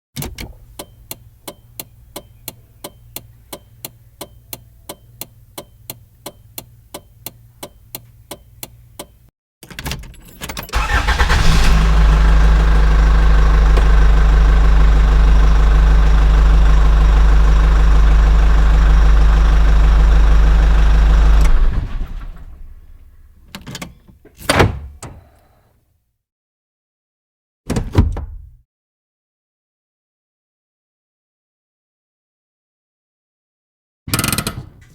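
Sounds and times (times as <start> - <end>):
diesel engine ticking: 0.6 - 9.3, 10.7 - 23.5
diesel engine running loud: 10.8 - 23.2.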